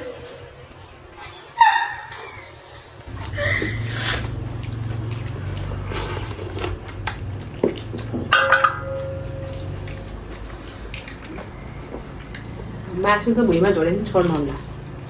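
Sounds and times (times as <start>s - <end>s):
wet tearing and chewing: 3.1s - 8.3s, 9.0s - 15.0s
low hum: 3.1s - 15.0s
dishes clinking: 6.7s - 10.5s.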